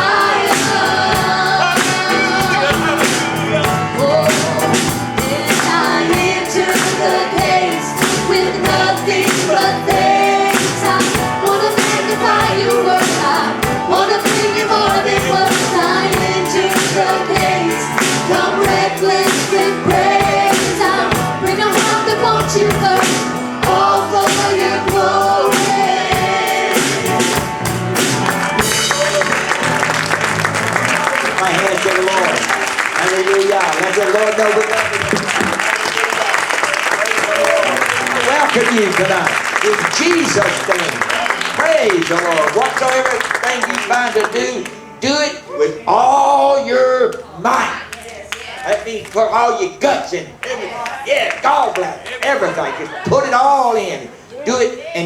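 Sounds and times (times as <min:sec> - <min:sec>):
gospel singers with band: 0:00.0 - 0:30.6
congregation applauding: 0:26.3 - 0:44.9, 0:47.8 - 0:49.3, 0:50.3 - 0:53.1.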